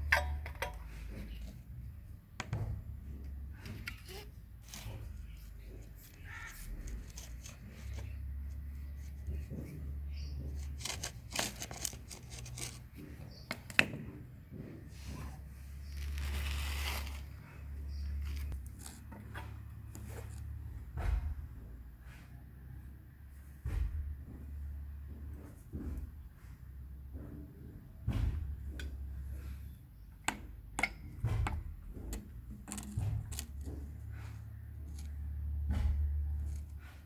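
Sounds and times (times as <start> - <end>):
plumbing pipe fittings clicking: 0.0 - 1.8, 30.2 - 34.2.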